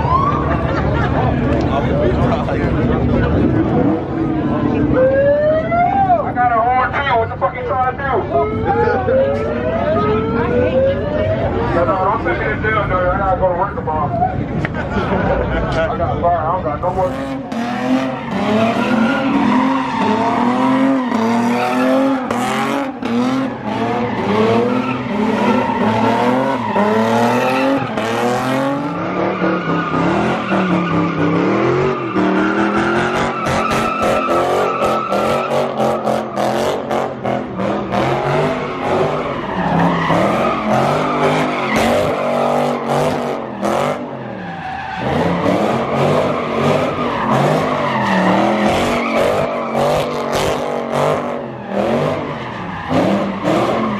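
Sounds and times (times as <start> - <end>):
car engine revving: 1.0 - 6.2, 16.6 - 53.9.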